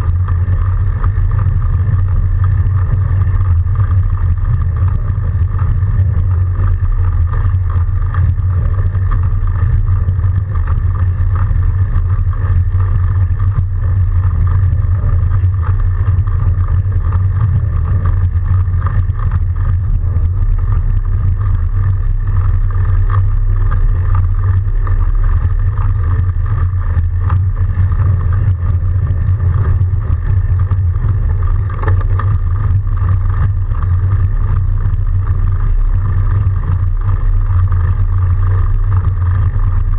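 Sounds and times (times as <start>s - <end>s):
bike riding through snow rumble: 0.0s - 39.9s
faint steady hum: 0.0s - 39.9s.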